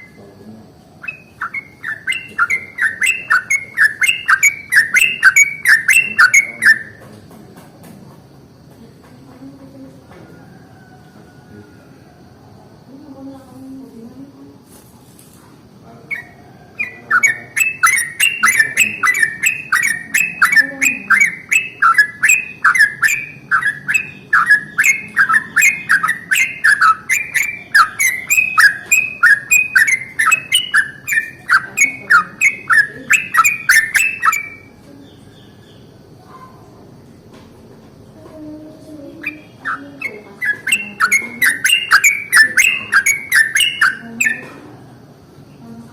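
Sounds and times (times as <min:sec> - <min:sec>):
bulbul singing sharp notes: 0:01.0 - 0:07.0, 0:16.2 - 0:34.7, 0:39.0 - 0:44.5.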